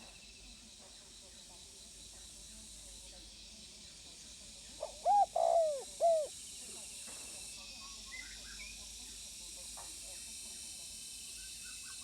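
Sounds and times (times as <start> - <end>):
dove cooing: 4.8 - 6.3.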